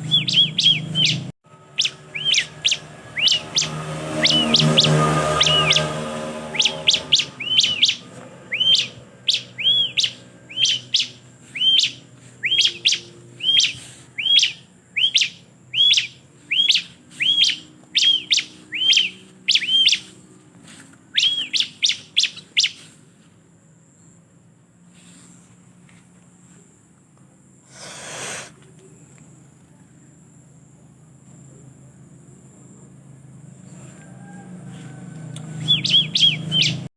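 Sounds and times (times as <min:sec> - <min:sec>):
bird calling sharp repeated notes: 0:00.0 - 0:20.2, 0:21.1 - 0:22.9, 0:35.5 - 0:36.9
noisy rustle: 0:01.9 - 0:15.1, 0:16.3 - 0:23.6.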